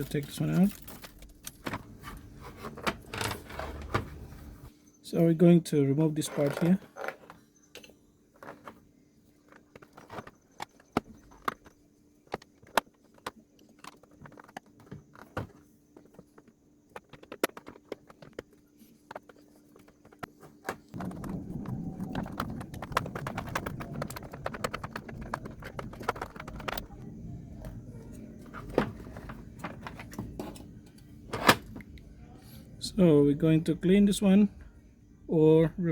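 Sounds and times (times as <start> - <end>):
parts scraping and rattling: 0.0 - 4.7, 6.0 - 27.1, 27.8 - 31.8
faint electrical hum: 0.0 - 35.9
plastic parts clicking and knocking: 6.2 - 27.1, 28.4 - 31.8.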